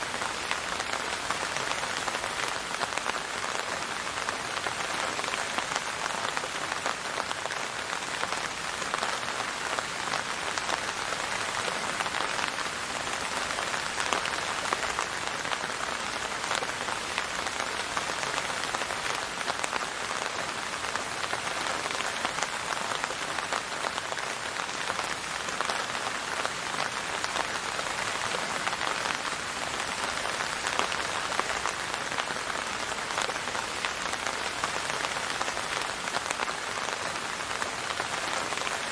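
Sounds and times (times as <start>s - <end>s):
rain pattering on a surface: 0.0s - 38.9s.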